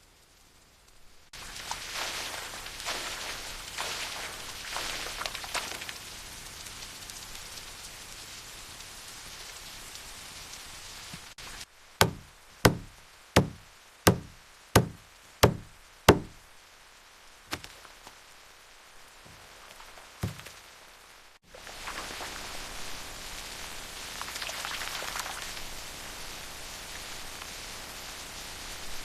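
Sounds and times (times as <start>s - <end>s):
steady rain falling: 0.0s - 29.0s
sharp knocks: 12.0s - 16.4s.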